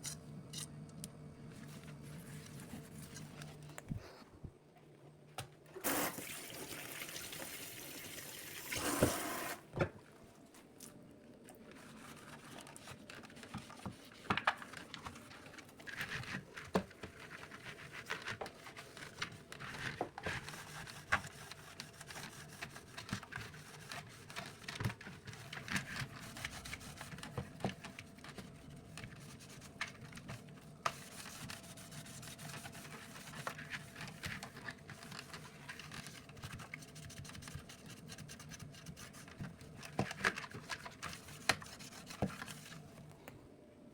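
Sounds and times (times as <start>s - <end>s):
water running: 5.8s - 9.7s.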